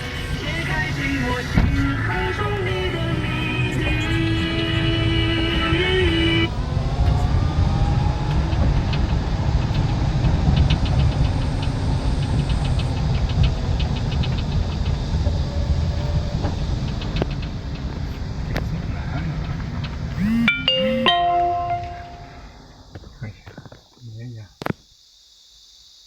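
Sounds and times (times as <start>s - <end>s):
car tyre and wind noise: 0.0s - 20.2s.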